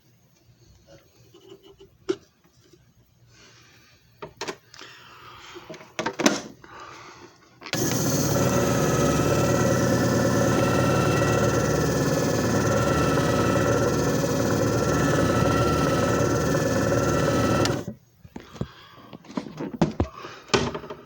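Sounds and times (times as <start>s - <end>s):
machine motor humming: 7.8s - 18.0s.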